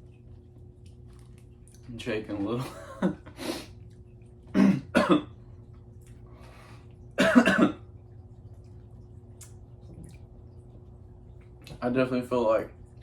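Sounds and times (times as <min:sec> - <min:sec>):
man coughing: 0:02.7 - 0:03.4, 0:04.6 - 0:05.3, 0:07.2 - 0:07.8.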